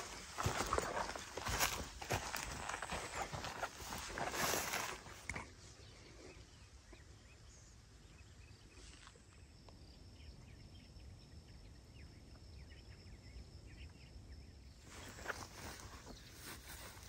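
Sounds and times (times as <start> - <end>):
faint distant bird chirps: 0.0 - 17.0.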